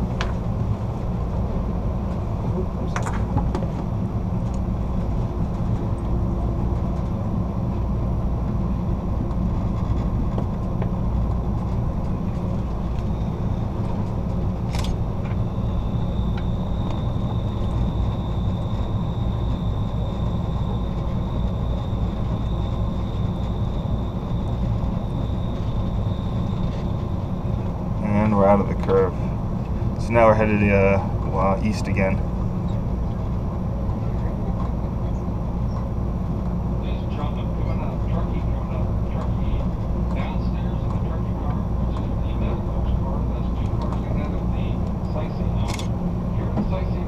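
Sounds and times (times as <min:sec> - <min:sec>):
train rumbling on rails: 0:00.0 - 0:47.0
train wheels squealing: 0:14.8 - 0:28.3, 0:45.0 - 0:45.7, 0:46.4 - 0:47.0.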